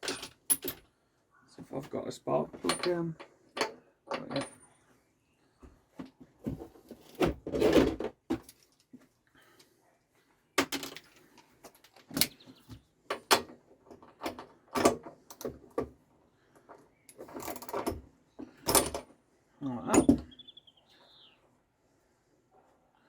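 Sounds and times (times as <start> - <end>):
hand tools rattling on metal: 2.6 - 4.6.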